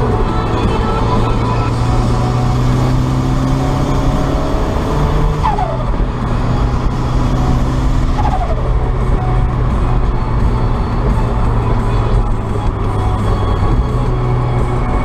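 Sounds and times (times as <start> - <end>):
car engine running: 0.0 - 15.0
turbo whistle spooling down: 4.0 - 6.0, 7.2 - 9.1.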